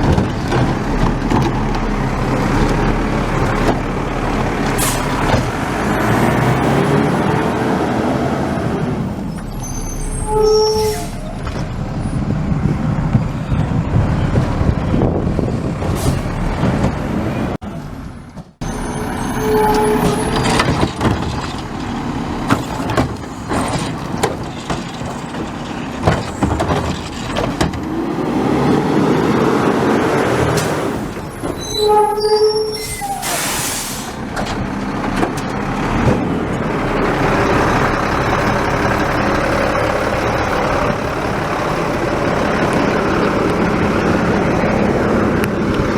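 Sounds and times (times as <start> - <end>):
garbage truck engine rumbling: 0.0 - 45.9
air brake hiss: 4.8 - 5.2, 32.9 - 34.2.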